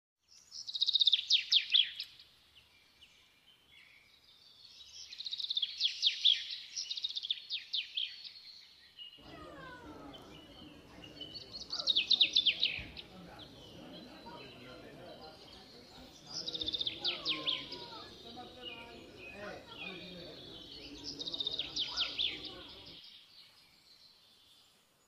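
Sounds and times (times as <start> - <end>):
low outdoor background hum: 9.2 - 17.0.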